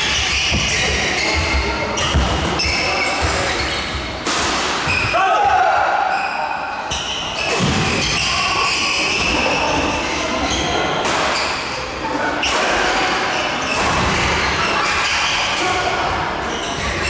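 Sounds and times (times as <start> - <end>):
shoes squeaking on floor: 0.0 - 4.2, 6.1 - 12.0, 16.4 - 17.0
rackets hitting shuttlecock: 0.1 - 5.2, 6.9 - 16.9.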